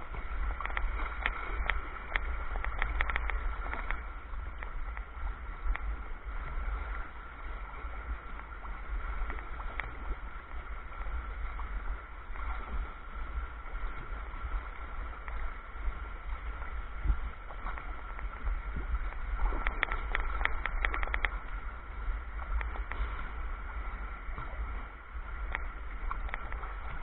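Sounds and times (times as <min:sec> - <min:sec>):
steady low rumble: 0:00.0 - 0:27.0
water rushing along kayak hull: 0:00.0 - 0:27.0.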